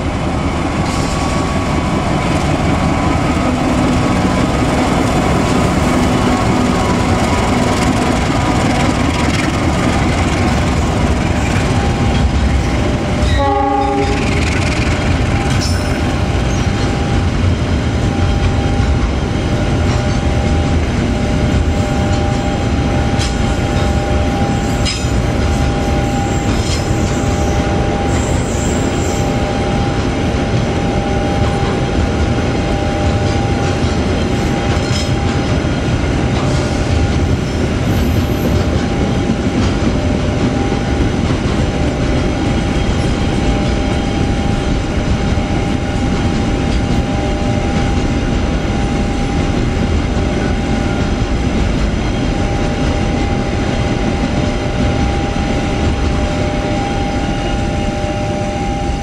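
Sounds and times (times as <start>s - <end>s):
freight train wheels rumbling on rails: 0.0s - 59.0s
steady high tone: 42.4s - 59.0s.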